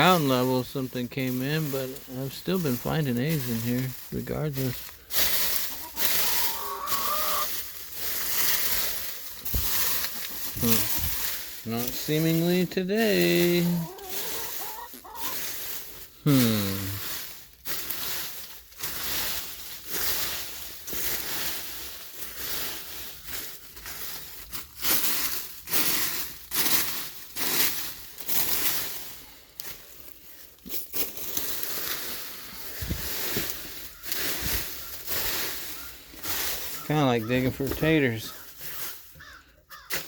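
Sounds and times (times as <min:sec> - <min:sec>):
hands digging through dry leaves: 0:00.0 - 0:40.0.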